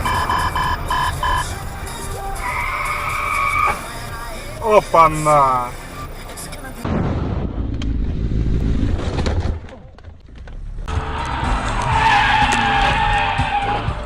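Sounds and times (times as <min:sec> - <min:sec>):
car rumbling on road: 0:00.0 - 0:14.0
tyres squealing in a skid: 0:02.4 - 0:04.1, 0:10.9 - 0:14.0.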